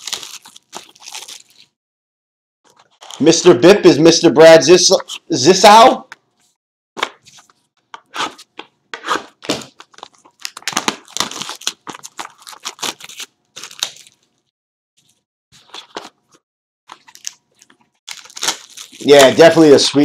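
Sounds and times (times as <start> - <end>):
plastic wrapping tearing: 0.0 - 1.8, 9.1 - 14.5, 16.9 - 20.0.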